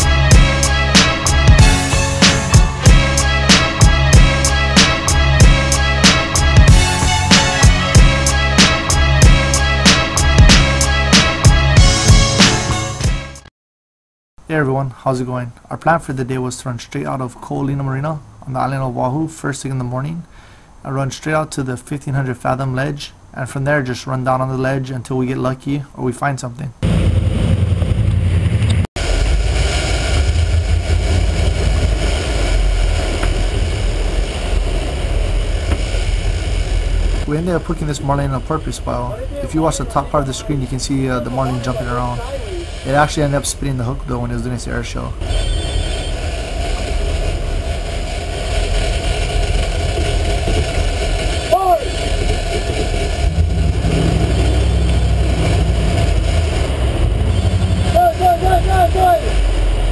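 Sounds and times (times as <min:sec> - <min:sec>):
boat engine rumbling: 0:00.0 - 0:12.4, 0:26.8 - 0:59.9
wind: 0:14.4 - 0:59.9
water noise: 0:28.8 - 0:59.9.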